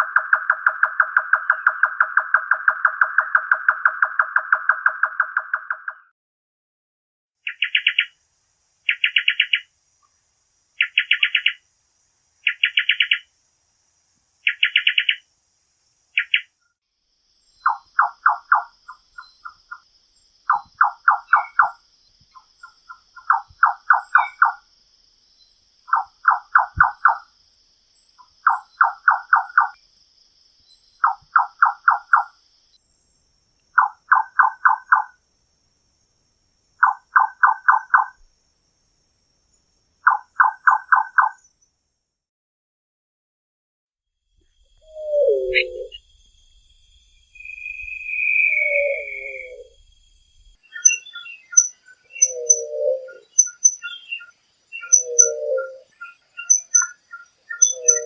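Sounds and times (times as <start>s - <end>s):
nightjar calling: 7.4s - 8.2s, 8.9s - 9.7s, 10.8s - 11.6s, 12.4s - 13.3s, 14.4s - 15.2s, 16.2s - 16.5s, 17.4s - 24.6s, 25.9s - 27.3s, 28.0s - 29.8s, 30.9s - 32.4s, 33.7s - 35.2s, 36.8s - 38.2s, 40.0s - 41.5s, 44.6s - 58.0s
lower nightjar pulse calls: 7.4s - 9.7s, 10.8s - 11.7s, 12.4s - 13.3s, 14.4s - 15.3s, 16.1s - 16.6s, 17.4s - 24.7s, 25.4s - 27.4s, 28.0s - 29.8s, 30.7s - 32.4s, 33.7s - 35.2s, 36.8s - 38.2s, 40.0s - 41.6s, 44.5s - 58.0s.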